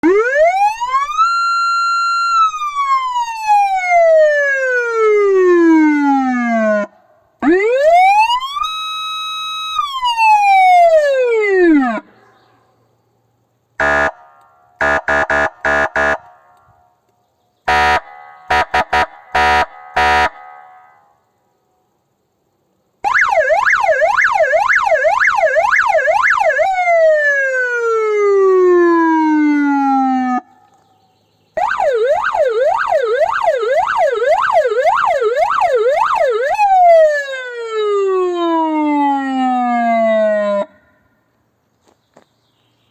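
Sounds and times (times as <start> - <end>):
police siren wailing: 0.0 - 12.1, 13.8 - 14.1, 17.7 - 20.5, 23.1 - 30.5, 31.6 - 40.8
siren yelp: 0.0 - 12.1, 13.8 - 14.2, 14.8 - 16.2, 17.7 - 20.6, 23.0 - 30.6, 31.6 - 41.0
short harsh horn blasts: 13.8 - 16.5, 17.7 - 21.1.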